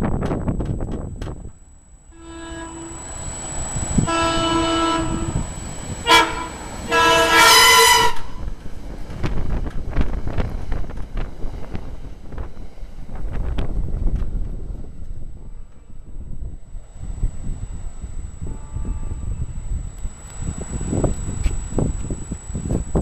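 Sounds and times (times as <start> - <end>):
wind on microphone: 0.0 - 1.6, 2.5 - 23.0
train air horn blasts: 2.1 - 8.4, 18.4 - 19.7.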